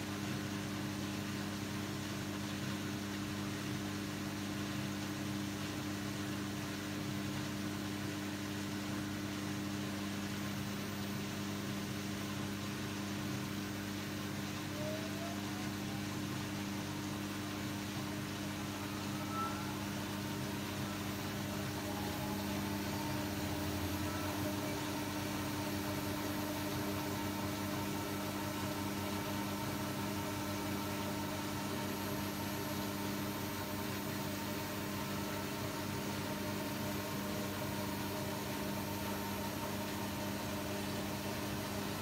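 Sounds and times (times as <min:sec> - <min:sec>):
mechanical hum with drone: 0:00.0 - 0:42.0.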